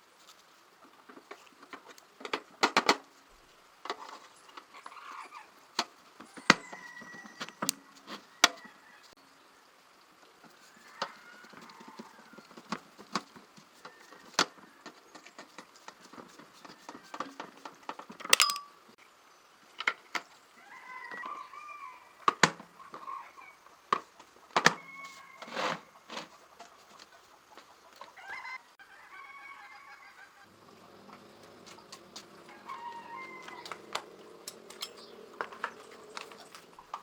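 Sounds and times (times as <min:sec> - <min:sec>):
tools clicking and knocking: 0:18.3 - 0:18.8, 0:34.4 - 0:36.3.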